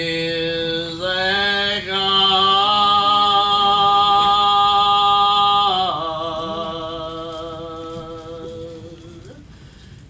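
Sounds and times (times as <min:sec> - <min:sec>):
person singing a long note: 0:01.3 - 0:09.4.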